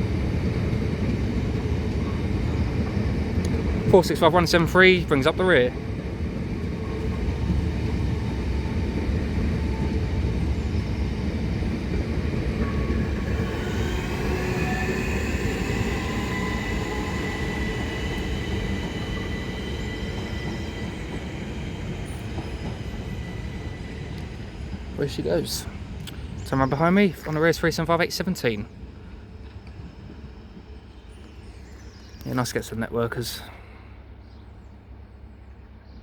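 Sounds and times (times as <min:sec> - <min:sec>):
train wheels rumbling on track: 0:00.0 - 0:35.8
thin high whining tones: 0:12.6 - 0:24.5.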